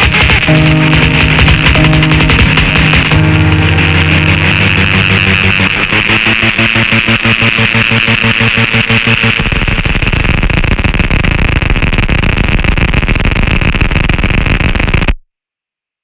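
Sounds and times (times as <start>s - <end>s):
harsh experimental electronic music: 0.0s - 11.4s.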